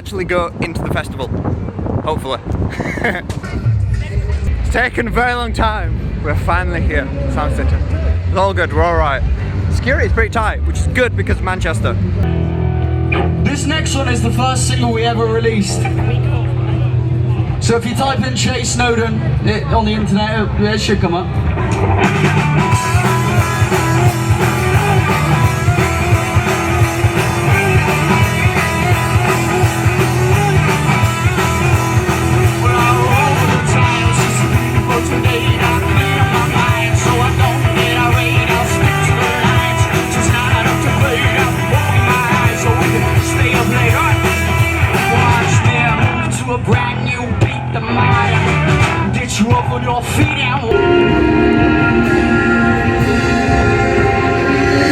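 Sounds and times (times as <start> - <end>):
rock band playing: 12.2 - 17.6, 21.3 - 54.9
person singing: 32.3 - 46.2, 50.7 - 54.9.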